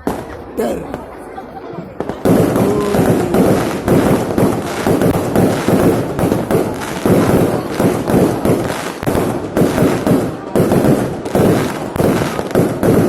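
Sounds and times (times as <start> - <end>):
fireworks bangs: 2.0 - 13.0.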